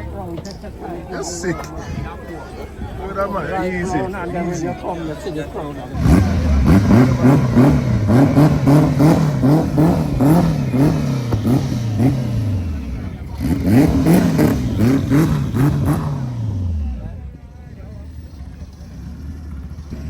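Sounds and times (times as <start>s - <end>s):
car engine revving in blips: 4.7s - 20.0s.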